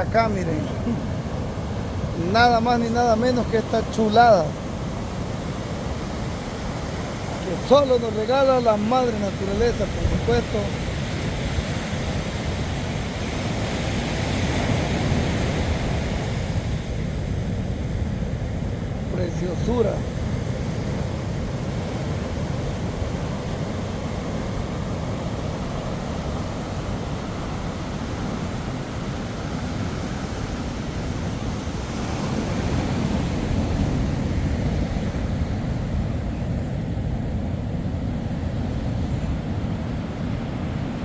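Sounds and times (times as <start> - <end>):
surf: 0.0 - 41.0
wind on microphone: 9.2 - 19.1.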